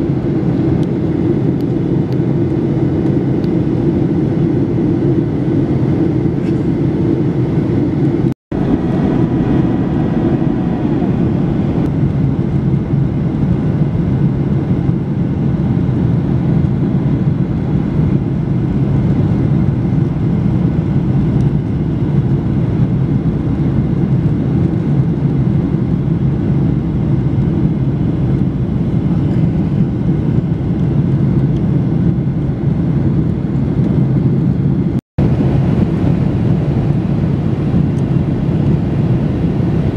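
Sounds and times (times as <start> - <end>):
jet engines roaring in cabin: 0.0 - 39.9
rushing air: 3.8 - 13.5.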